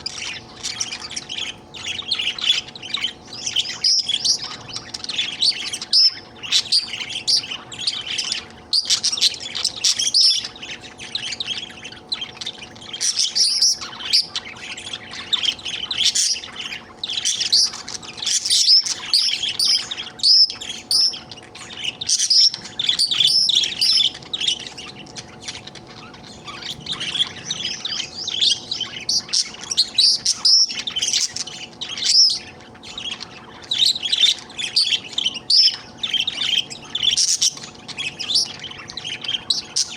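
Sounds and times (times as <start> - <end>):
budgerigar chattering: 0.0 - 39.9.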